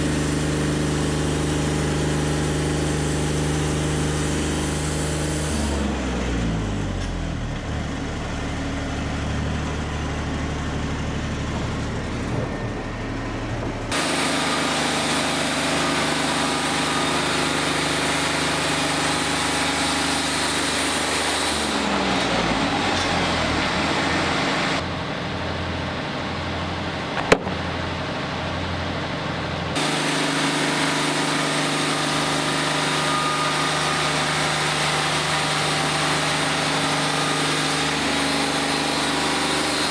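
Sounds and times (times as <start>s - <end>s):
engine running: 0.0s - 39.9s
sharp click: 27.2s - 27.7s.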